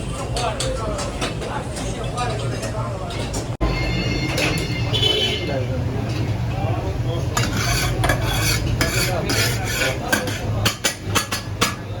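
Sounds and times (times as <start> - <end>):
metal utensil scraping a pan: 7.3 - 11.8.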